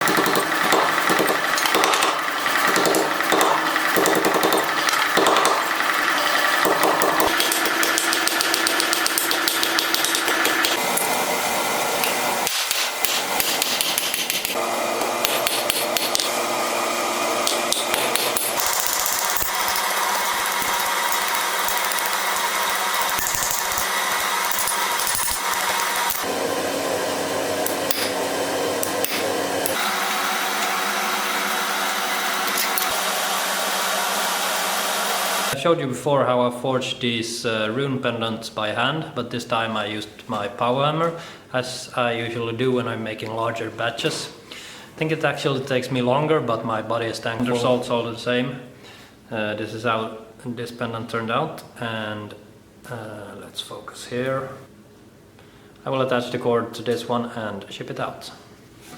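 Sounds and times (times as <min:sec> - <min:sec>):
power hammer pounding steel: 0:00.0 - 0:11.1, 0:12.0 - 0:16.5, 0:17.4 - 0:26.4, 0:27.5 - 0:31.0.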